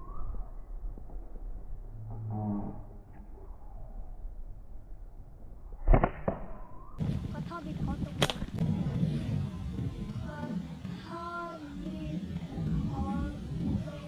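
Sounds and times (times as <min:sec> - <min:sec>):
slingshot shots cracking: 0:05.8 - 0:06.6, 0:08.1 - 0:08.6.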